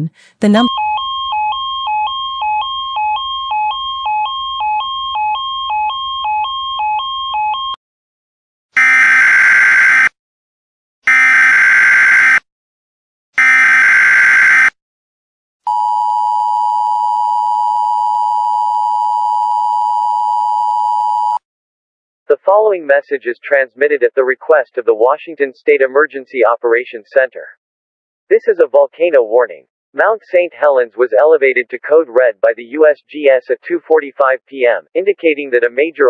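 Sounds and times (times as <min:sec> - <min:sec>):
long steady attention tone: 0:00.0 - 0:07.8, 0:15.7 - 0:21.4
two-pitch alert alarm: 0:00.4 - 0:07.8, 0:13.4 - 0:14.7.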